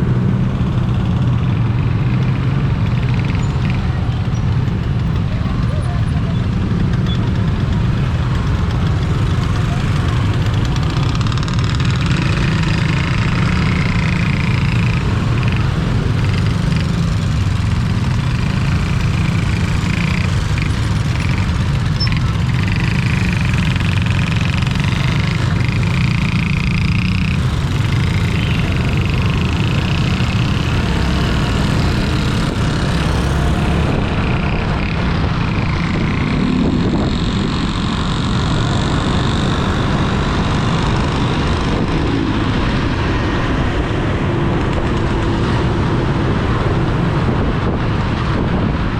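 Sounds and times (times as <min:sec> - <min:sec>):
road noise: 0:00.0 - 0:48.9
vehicle engine: 0:00.0 - 0:48.9
wind rumble on microphone: 0:31.6 - 0:48.9.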